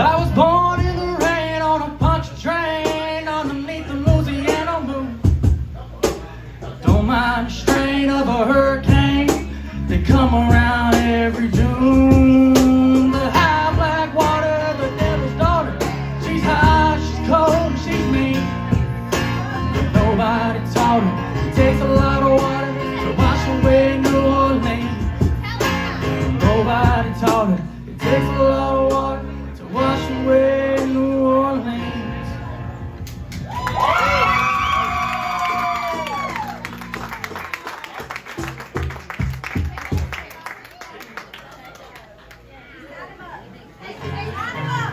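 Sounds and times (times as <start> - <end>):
band playing blues-rock song: 0.0 - 37.4
person singing: 6.8 - 32.6.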